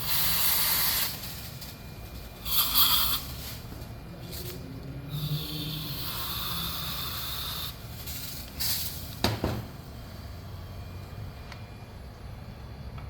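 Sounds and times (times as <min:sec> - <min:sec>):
aerosol spray hissing: 0:00.0 - 0:01.7, 0:02.4 - 0:03.7, 0:05.1 - 0:09.2.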